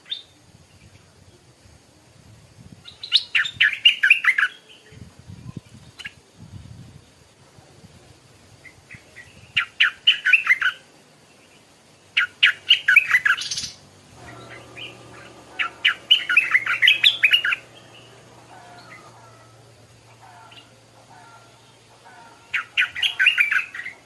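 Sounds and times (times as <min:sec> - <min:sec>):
bird singing rapid chirps: 0:11.6 - 0:24.0.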